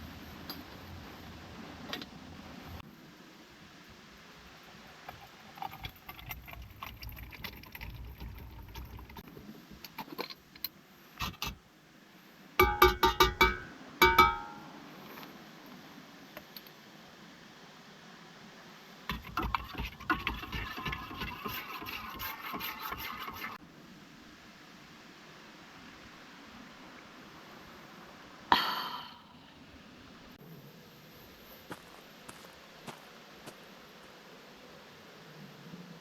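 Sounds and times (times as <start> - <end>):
sharp metallic knocks: 12.6 - 14.8.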